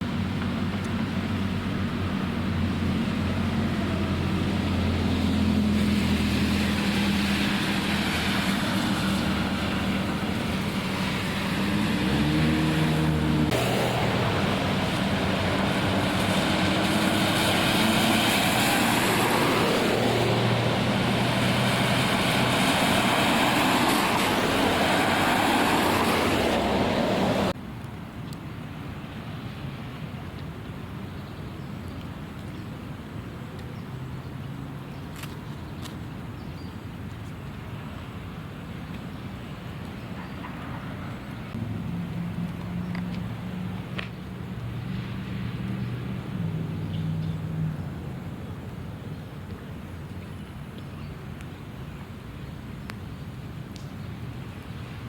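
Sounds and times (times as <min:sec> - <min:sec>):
car engines running: 0:00.0 - 0:27.6
tyres rushing through water: 0:00.0 - 0:55.0.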